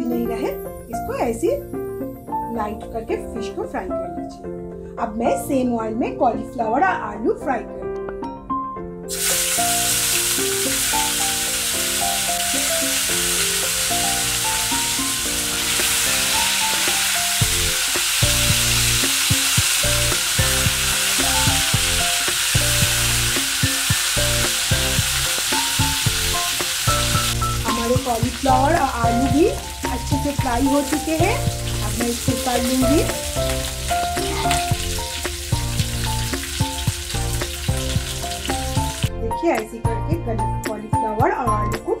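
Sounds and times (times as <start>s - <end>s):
vegetables sizzling in hot oil: 9.1s - 39.1s.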